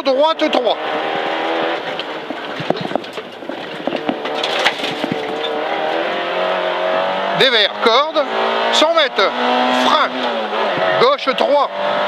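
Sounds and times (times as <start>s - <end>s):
road noise: 0.0s - 12.0s
car engine from inside cabin: 0.8s - 11.0s.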